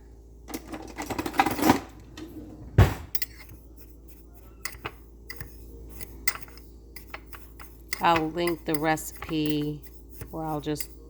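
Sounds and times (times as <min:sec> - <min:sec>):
spoon scraping a bowl: 0:03.1 - 0:11.0.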